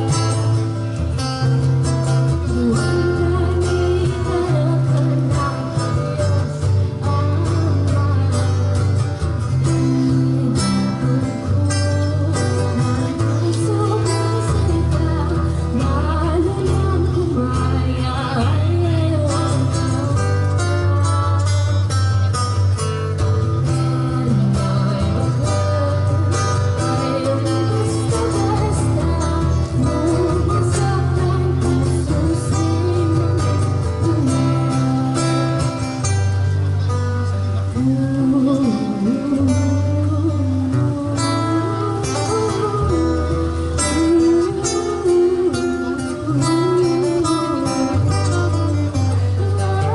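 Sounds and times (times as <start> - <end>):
acoustic guitar strumming chords: 0.0 - 49.9
low bass line: 0.0 - 49.9
person singing: 1.8 - 21.9, 23.6 - 36.2, 37.3 - 49.9.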